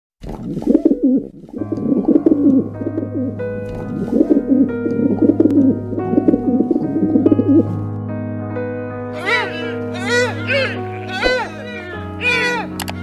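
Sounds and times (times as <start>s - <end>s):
dove cooing: 0.6s - 7.6s
soft sustained music: 0.7s - 13.0s.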